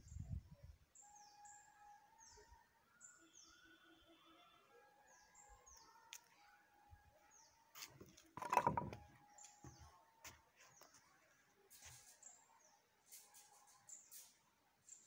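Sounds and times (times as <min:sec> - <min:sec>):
faint steady background noise: 0:00.0 - 0:15.0.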